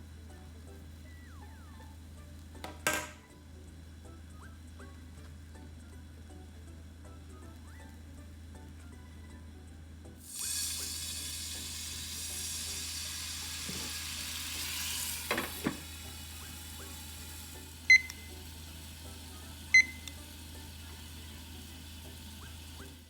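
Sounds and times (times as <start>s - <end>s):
pancakes sizzling in a frying pan: 10.2s - 23.0s.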